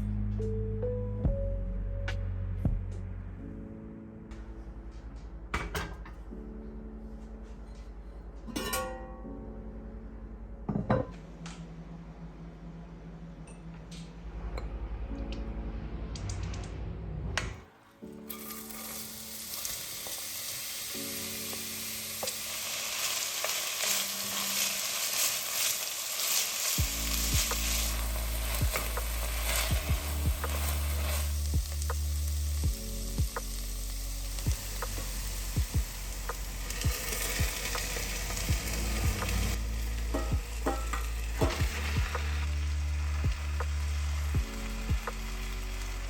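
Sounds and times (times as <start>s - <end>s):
soft background music: 0.0s - 46.0s
food sizzling in a pan: 18.3s - 46.0s.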